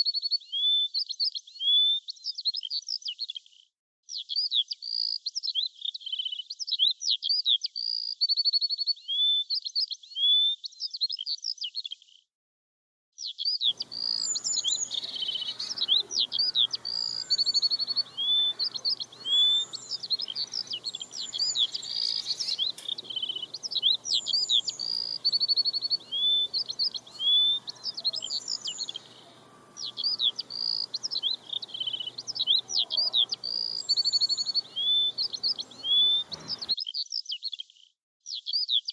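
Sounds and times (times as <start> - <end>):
faint background hiss: 13.7 - 36.5
songbirds chirping and trilling: 13.7 - 36.8.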